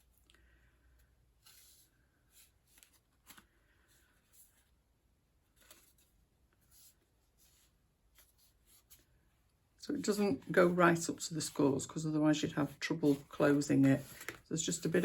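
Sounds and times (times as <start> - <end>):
cardstock tapping and rustling: 12.7 - 15.0.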